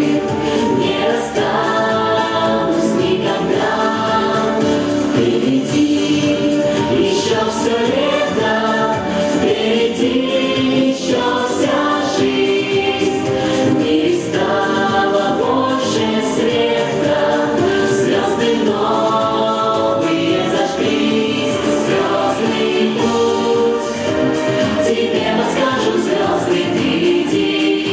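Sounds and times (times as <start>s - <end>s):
music: 0.0s - 27.9s
vocal group singing: 0.0s - 27.9s.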